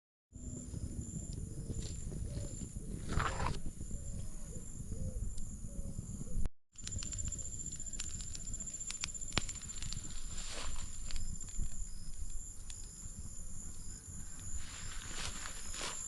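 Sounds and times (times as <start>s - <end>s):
scattered clicks: 6.8s - 13.0s
high insect drone: 6.8s - 16.0s.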